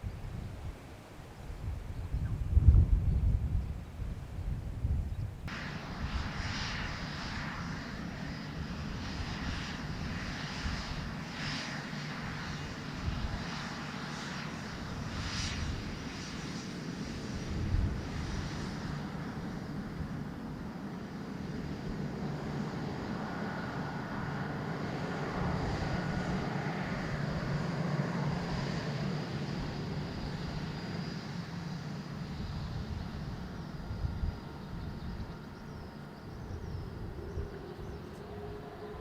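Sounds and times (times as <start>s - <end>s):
jet engines roaring: 5.4s - 39.0s.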